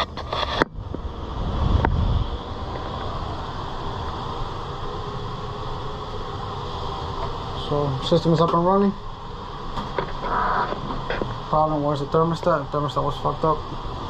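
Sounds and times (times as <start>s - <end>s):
air conditioner humming: 0.0s - 14.0s.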